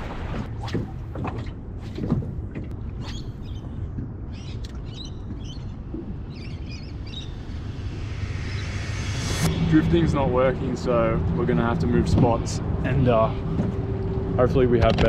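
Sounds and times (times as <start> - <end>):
wind rumble on microphone: 0.0 - 15.0
birds chirping: 3.0 - 7.6.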